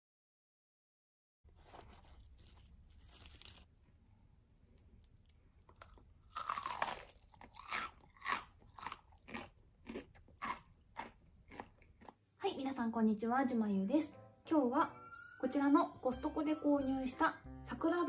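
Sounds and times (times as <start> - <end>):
crunchy bite of fried chicken: 1.6 - 3.7, 4.8 - 12.2
crunchy chewing: 1.6 - 3.7, 4.7 - 12.2.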